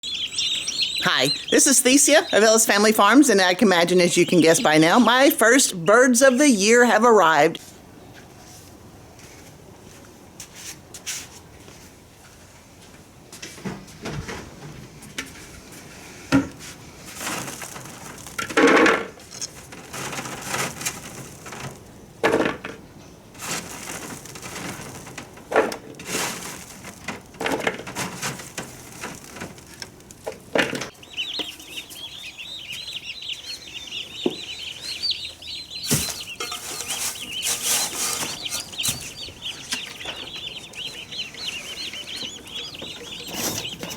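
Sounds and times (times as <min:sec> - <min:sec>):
turkey poults peeping: 0:00.0 - 0:07.6, 0:28.0 - 0:43.9
knocks and rustling of handling: 0:23.4 - 0:31.6, 0:35.8 - 0:41.5.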